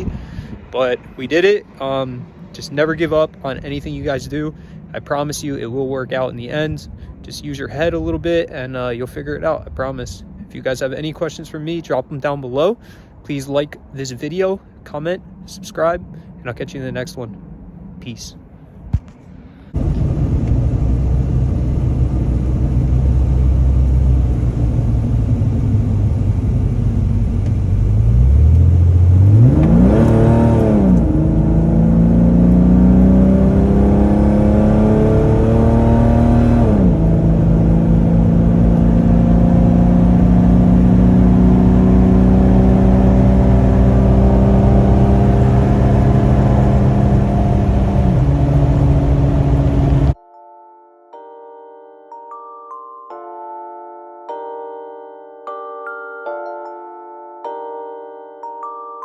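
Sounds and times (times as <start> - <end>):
car engine accelerating: 19.2 - 50.2.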